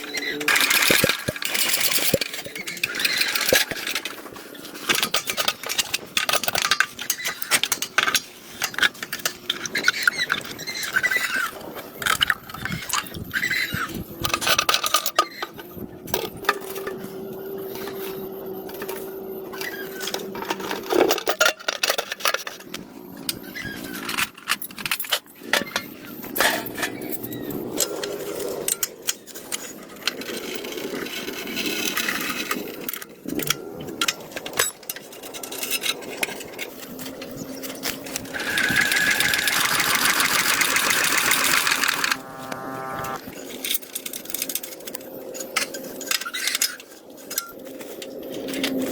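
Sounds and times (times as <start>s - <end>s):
metal parts clicking and knocking: 0.0s - 17.0s, 19.6s - 26.9s, 31.1s - 42.1s
high-pitched power tool: 38.3s - 43.2s
small motor humming: 38.3s - 43.2s.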